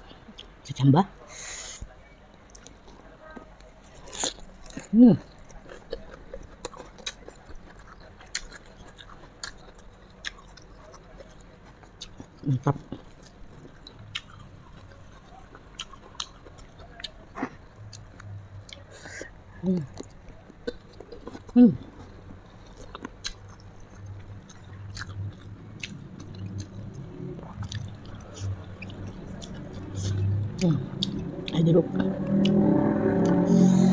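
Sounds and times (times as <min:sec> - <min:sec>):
chewing crisp bean sprouts: 0:03.8 - 0:19.1.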